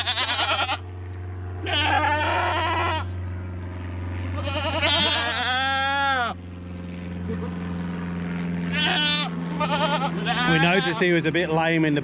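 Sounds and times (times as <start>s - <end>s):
goats bleating: 0.0s - 3.2s, 4.2s - 6.5s, 8.6s - 11.2s
steady low hum: 0.0s - 12.0s.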